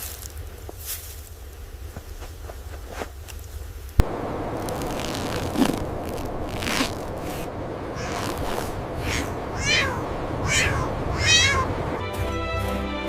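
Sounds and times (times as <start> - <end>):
steady noisy background: 0.0 - 12.4
cat meowing: 8.0 - 8.2, 9.0 - 11.8
music: 12.0 - 13.0.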